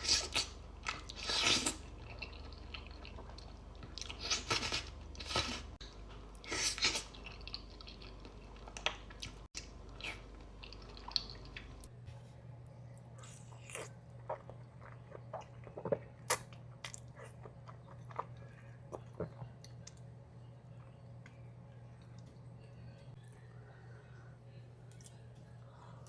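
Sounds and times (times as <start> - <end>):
chewing with crisp crunches: 0.0 - 12.0, 12.9 - 20.1
low hum: 7.3 - 26.0.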